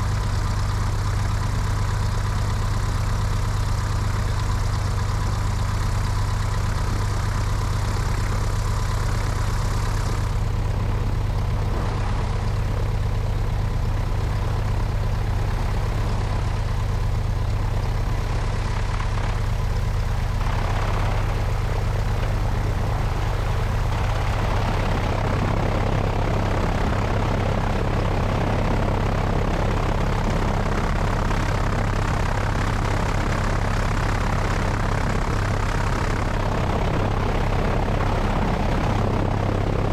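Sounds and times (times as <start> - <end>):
propeller plane engine: 0.0 - 39.9.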